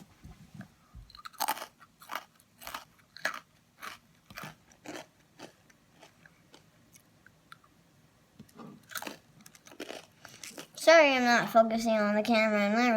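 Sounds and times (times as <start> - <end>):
cookie crunching while chewed: 1.1 - 7.6, 8.8 - 10.9.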